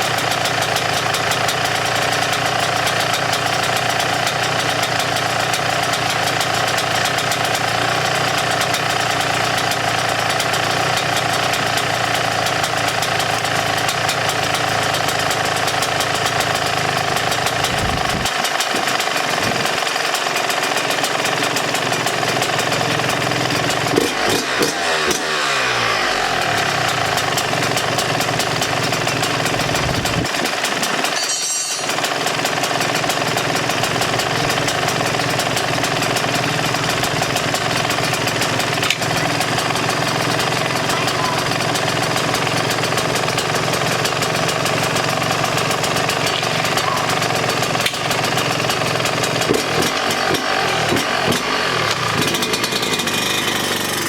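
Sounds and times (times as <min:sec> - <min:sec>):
two-stroke motorcycle engine running: 0:00.0 - 0:54.0
engine throttle burst: 0:16.6 - 0:20.7, 0:23.2 - 0:54.0.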